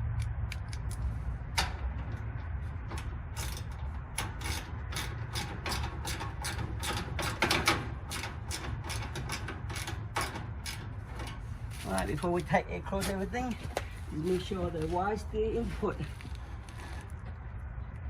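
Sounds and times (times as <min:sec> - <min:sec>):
ratchet wrench clicking: 0:03.0 - 0:11.4.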